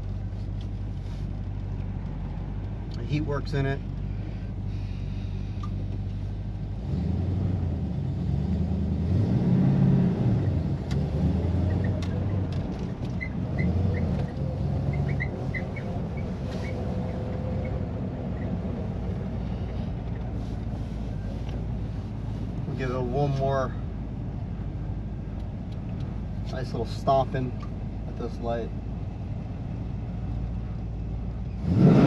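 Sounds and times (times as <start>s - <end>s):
car engine running: 0.0s - 31.8s
short high squeaks: 13.1s - 17.8s.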